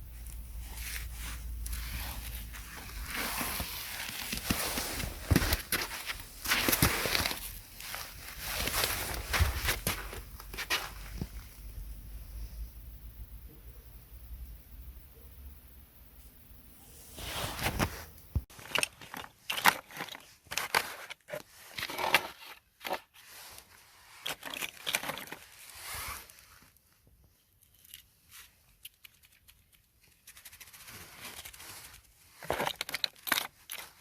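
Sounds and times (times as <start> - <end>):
crisp material crunching and tearing: 0.2 - 11.0.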